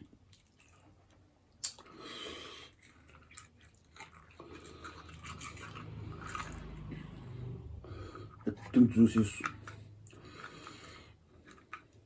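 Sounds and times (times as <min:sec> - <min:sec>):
soft chewing: 0:00.0 - 0:12.0
wet slurping sound: 0:01.6 - 0:12.0.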